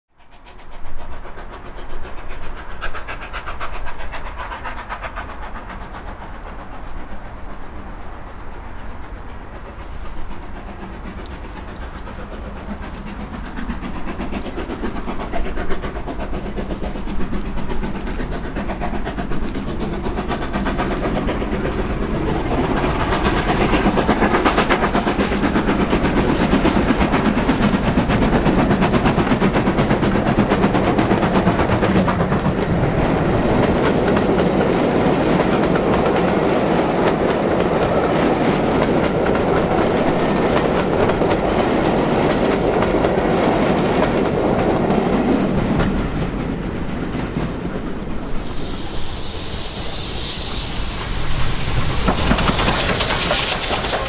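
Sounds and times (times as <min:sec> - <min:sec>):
steam train rumbling on rails: 0:00.1 - 0:54.0
rapid wheel clatter: 0:48.4 - 0:54.0.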